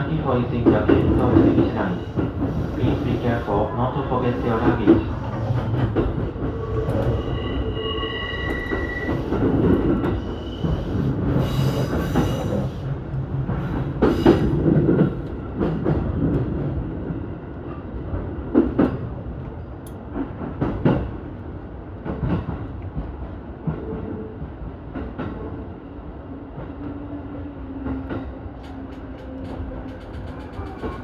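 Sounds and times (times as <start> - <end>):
train running noise: 0.0 - 31.0
train wheels clacking over joints: 28.1 - 31.0.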